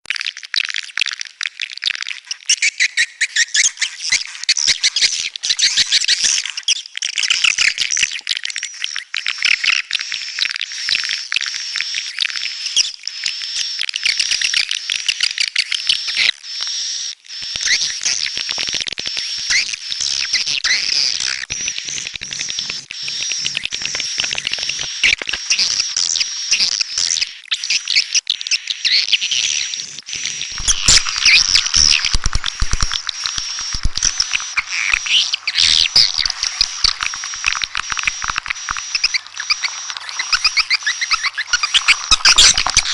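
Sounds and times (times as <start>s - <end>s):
swiftlets twittering: 29.5s - 42.9s.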